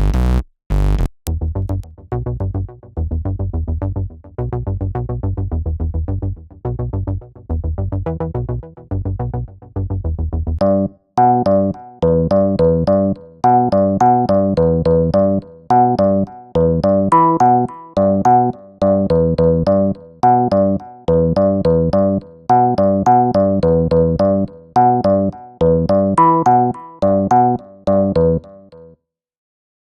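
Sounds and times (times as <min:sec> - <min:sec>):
pulsing low synth notes: 0:00.0 - 0:28.6
synth keys repeating pattern: 0:10.6 - 0:29.0.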